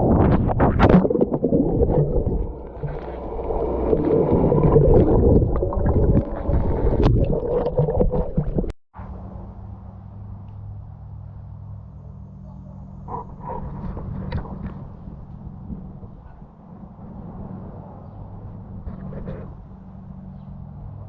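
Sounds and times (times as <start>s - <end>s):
water churning and gurgling: 0.0s - 8.8s.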